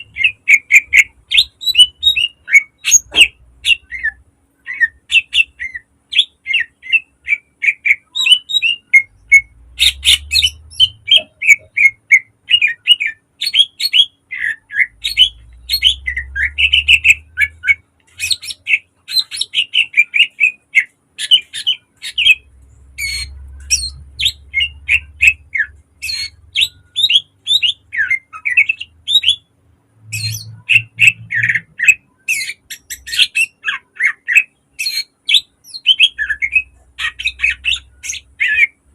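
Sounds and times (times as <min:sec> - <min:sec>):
bird singing rapid sharp notes: 0:00.0 - 0:38.9.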